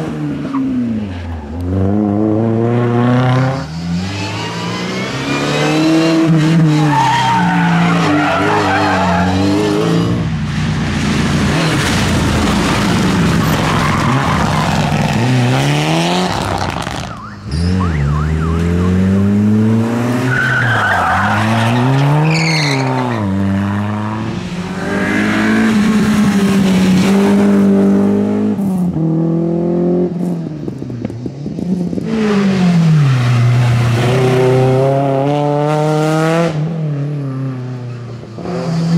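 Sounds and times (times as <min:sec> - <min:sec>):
rally car engines revving: 0:00.0 - 0:38.9
tyre squeal: 0:20.3 - 0:23.3.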